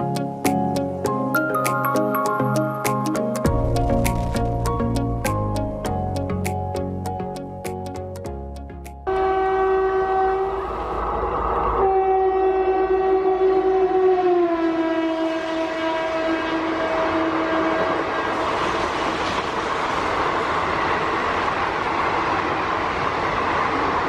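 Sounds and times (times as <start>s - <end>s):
rumble of passing train: 0.0s - 24.0s
locomotive horn blasts: 9.1s - 10.9s, 11.8s - 18.2s.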